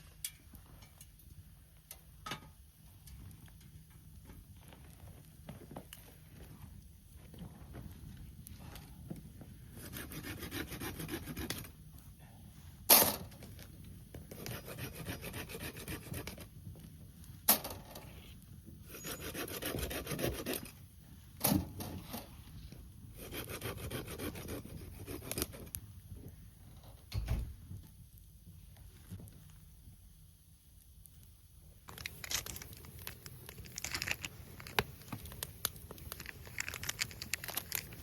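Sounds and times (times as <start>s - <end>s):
hand saw cutting wood: 9.8s - 11.7s, 14.3s - 16.4s, 18.9s - 20.7s, 23.2s - 25.6s.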